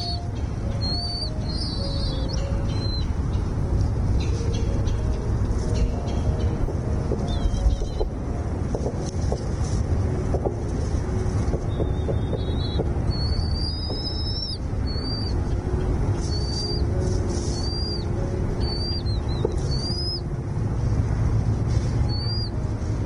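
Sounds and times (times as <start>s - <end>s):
small bird whistled calls: 0.0s - 3.2s, 4.2s - 8.1s, 11.6s - 20.2s, 22.1s - 22.6s
steady low rumble: 0.0s - 23.0s.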